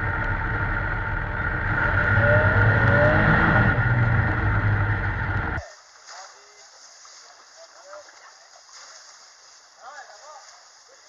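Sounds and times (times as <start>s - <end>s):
engine running loudly: 0.0s - 5.6s.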